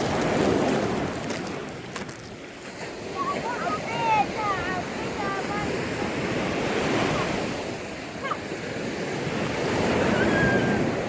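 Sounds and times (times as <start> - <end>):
waves washing onto beach: 0.0 - 11.0
wind on microphone: 0.0 - 11.0.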